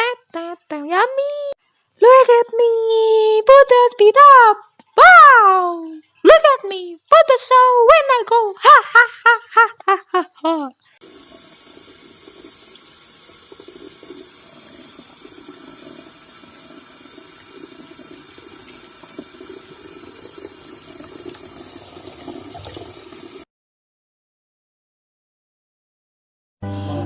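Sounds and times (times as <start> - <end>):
running water splashing: 11.0 - 23.4.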